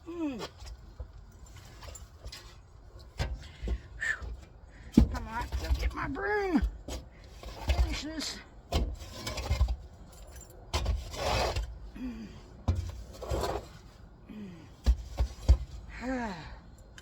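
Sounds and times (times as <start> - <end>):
scraping and rustling: 0.4 - 11.9, 12.7 - 14.2.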